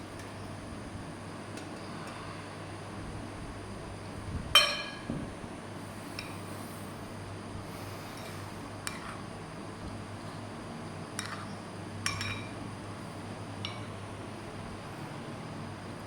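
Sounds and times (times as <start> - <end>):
dishes clinking: 4.6 - 5.2, 11.2 - 12.6, 13.6 - 13.9.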